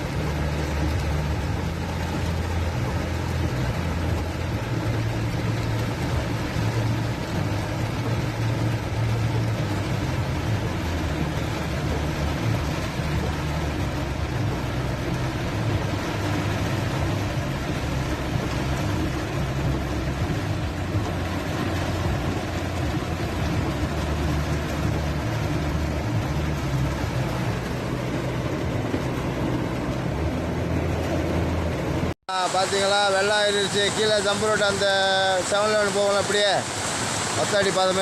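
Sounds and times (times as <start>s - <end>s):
vehicle engine running: 0.0s - 38.0s
constant hiss: 32.3s - 38.0s.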